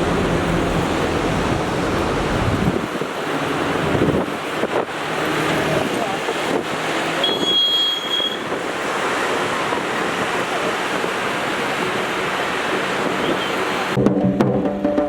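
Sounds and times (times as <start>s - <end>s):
river rushing: 0.0s - 14.0s
high whistle-like tone: 7.2s - 8.5s.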